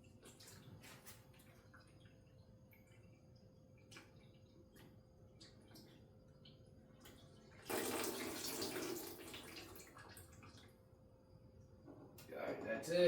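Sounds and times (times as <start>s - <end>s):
liquid gushing into a bucket: 7.2s - 10.8s.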